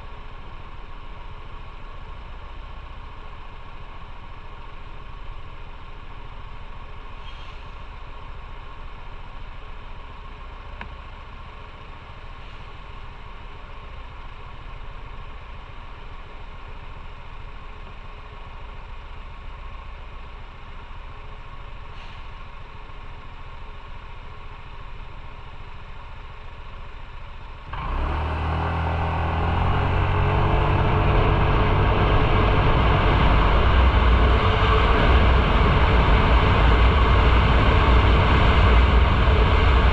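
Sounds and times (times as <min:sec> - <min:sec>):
motorcycle engine: 0:10.7 - 0:39.9
wind noise on microphone: 0:30.6 - 0:39.9.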